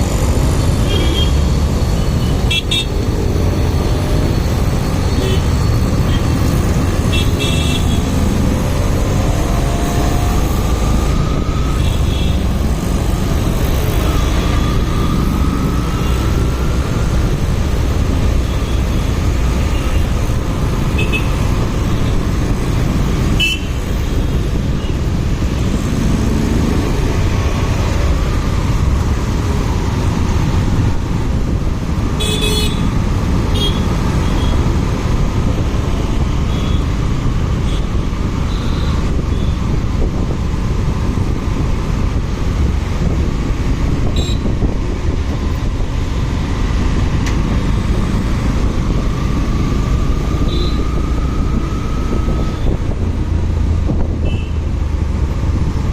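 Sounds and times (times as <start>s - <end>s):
wind noise on microphone: 0.0s - 55.9s.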